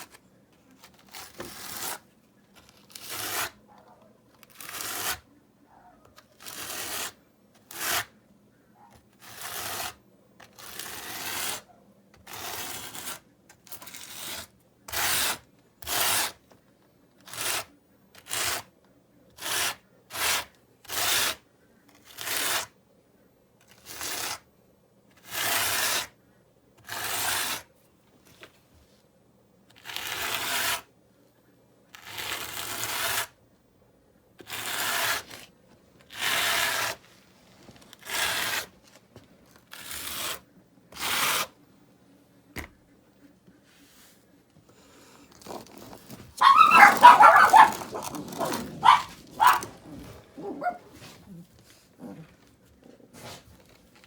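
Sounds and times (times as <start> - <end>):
hand tool scraping mortar: 0.8 - 3.6, 4.4 - 5.2, 6.3 - 8.2, 9.1 - 16.4, 17.3 - 18.7, 19.3 - 21.4, 22.0 - 22.7, 23.8 - 24.4, 25.2 - 26.1, 26.8 - 27.7, 29.8 - 30.9, 32.0 - 33.4, 34.4 - 38.9, 39.6 - 41.6, 45.2 - 52.4.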